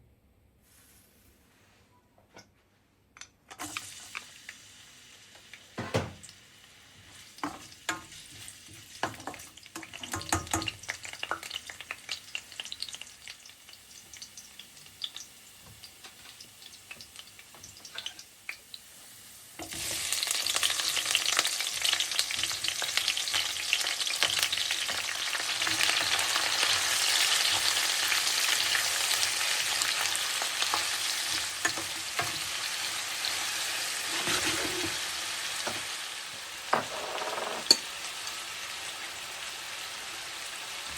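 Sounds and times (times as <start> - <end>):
food sizzling in a pan: 3.6 - 40.9
utensils knocking cookware: 36.7 - 37.9.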